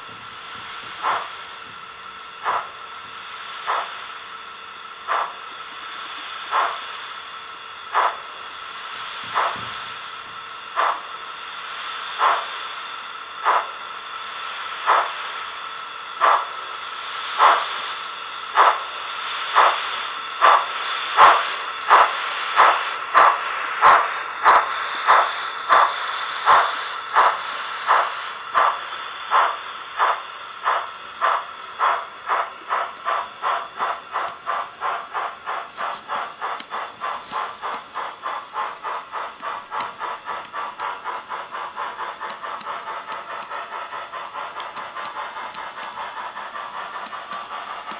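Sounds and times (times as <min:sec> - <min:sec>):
hiss of train running sound: 0:00.0 - 0:47.9
clacks of rail joints: 0:09.3 - 0:11.1, 0:20.4 - 0:47.9.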